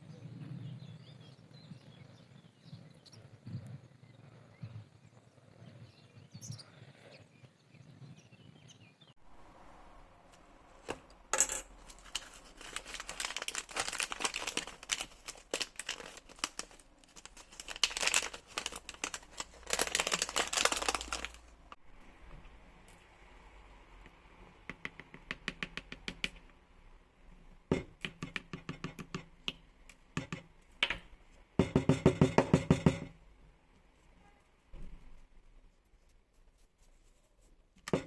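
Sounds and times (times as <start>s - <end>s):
crinkling handling noise: 10.8s - 21.8s.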